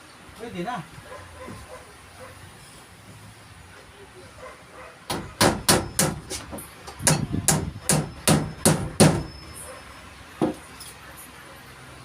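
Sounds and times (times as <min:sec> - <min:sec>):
hammer striking nails: 0:05.1 - 0:09.3.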